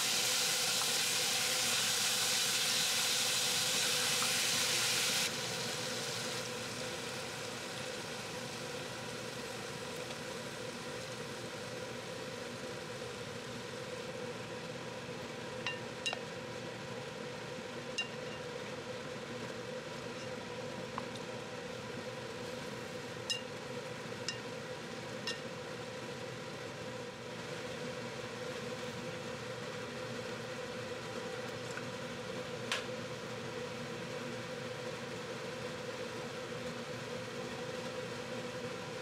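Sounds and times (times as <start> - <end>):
loud high hiss: 0.0 - 9.7
chicken frying sizzle: 0.0 - 39.0.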